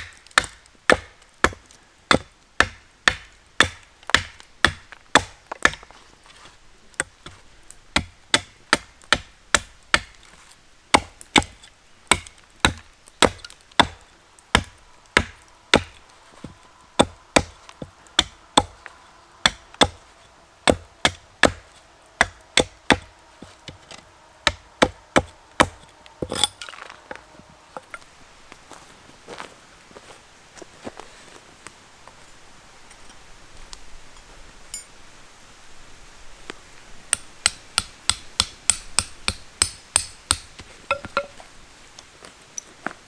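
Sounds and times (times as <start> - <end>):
axe chopping firewood: 0.0 - 27.2, 37.2 - 41.5.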